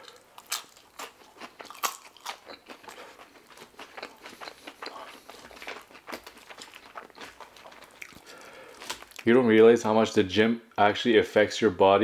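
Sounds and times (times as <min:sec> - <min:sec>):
chewing french fries: 0:00.0 - 0:09.4.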